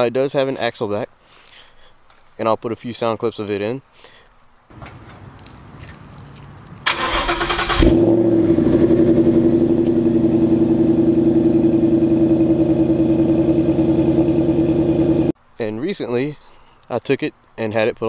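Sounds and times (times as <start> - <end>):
car engine idling: 5.8 - 15.4
engine starter cranking: 6.8 - 8.9.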